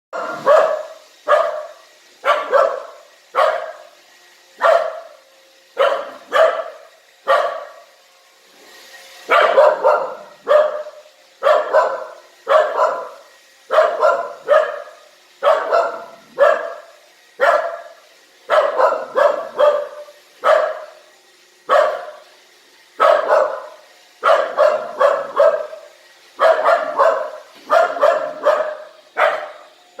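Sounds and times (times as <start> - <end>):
dog barking: 0.1 - 4.0, 4.6 - 5.2, 5.8 - 7.9, 9.3 - 21.0, 21.7 - 22.2, 23.0 - 29.7.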